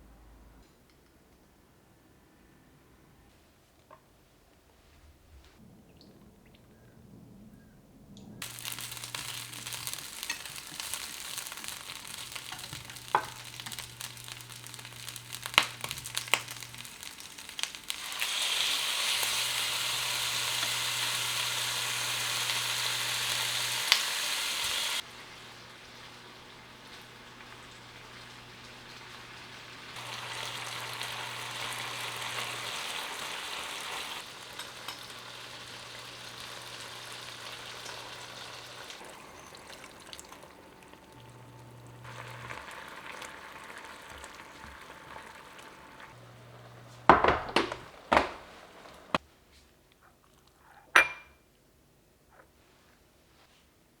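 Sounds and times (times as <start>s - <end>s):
food sizzling in a pan: 8.4s - 49.2s.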